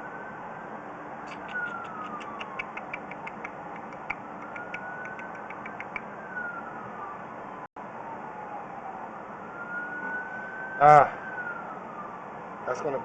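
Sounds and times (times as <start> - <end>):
distant siren wailing: 0.0 - 13.0
rapid small clicks: 1.3 - 6.0.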